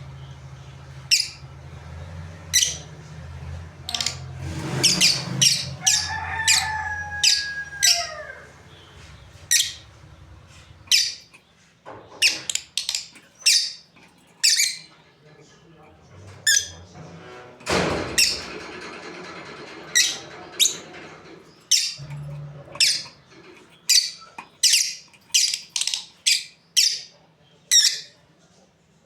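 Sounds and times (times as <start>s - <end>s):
lovebirds squawking chirps: 0.9s - 1.8s, 2.4s - 3.0s, 3.8s - 15.2s, 21.6s - 28.2s.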